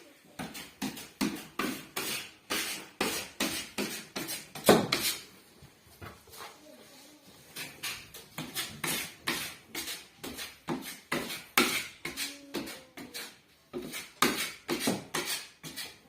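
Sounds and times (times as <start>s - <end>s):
putty knife scraping drywall: 0.4s - 5.3s, 7.4s - 16.0s.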